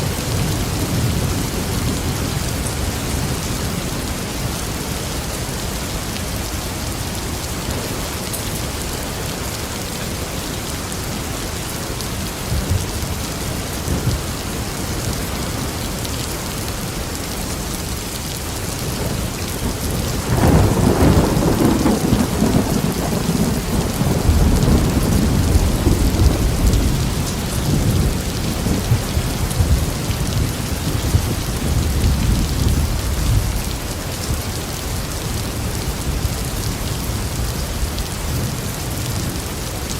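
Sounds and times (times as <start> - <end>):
thunder clap and rumble: 0.0 - 4.8, 12.4 - 15.8, 18.8 - 39.5
heavy rain hissing: 0.0 - 39.9.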